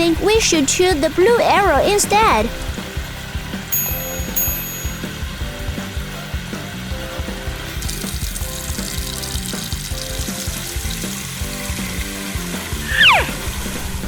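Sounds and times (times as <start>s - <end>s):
light cartoon music: 0.0s - 14.0s
water running from a tap: 7.2s - 13.9s.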